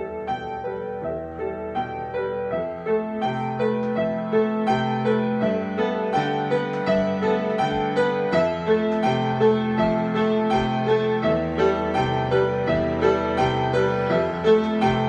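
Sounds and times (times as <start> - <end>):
piano improvisation: 0.0 - 15.0.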